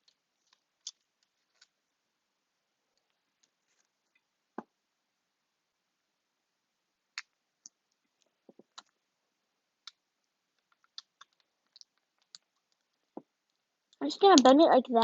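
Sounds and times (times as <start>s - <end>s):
faint clicks and taps: 0.0s - 1.8s, 7.1s - 9.0s, 9.8s - 14.6s.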